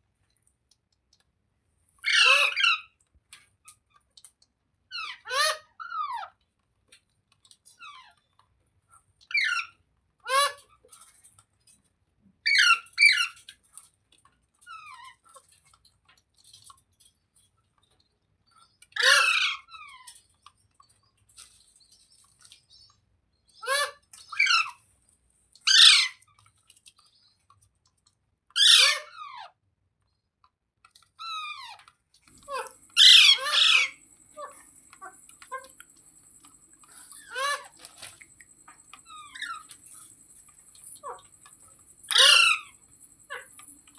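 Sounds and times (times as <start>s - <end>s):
parrot screeching: 2.0s - 2.9s, 12.5s - 13.4s, 19.0s - 20.0s, 23.6s - 24.8s, 25.7s - 26.2s, 28.6s - 29.5s, 32.5s - 35.7s, 36.9s - 38.1s, 39.0s - 39.7s, 42.1s - 43.6s
faint steady hum: 30.9s - 43.9s.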